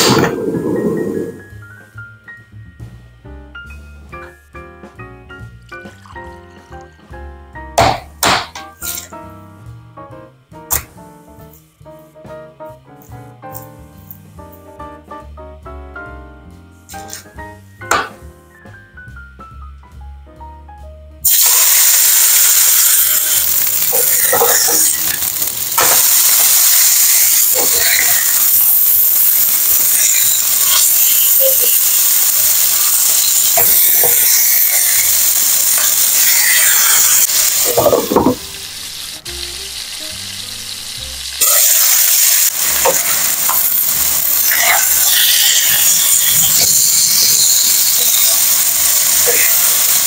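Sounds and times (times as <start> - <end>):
meat sizzling in oil: 21.2 - 50.0.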